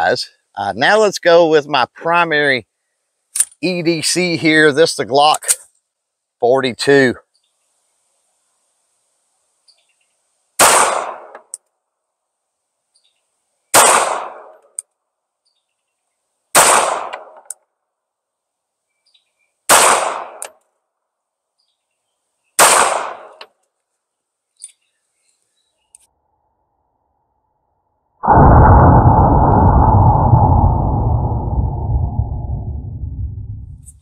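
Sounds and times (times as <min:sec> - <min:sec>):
pistol shots: 0:10.6 - 0:11.4, 0:13.7 - 0:14.5, 0:16.6 - 0:17.4, 0:19.7 - 0:20.4, 0:22.6 - 0:23.4.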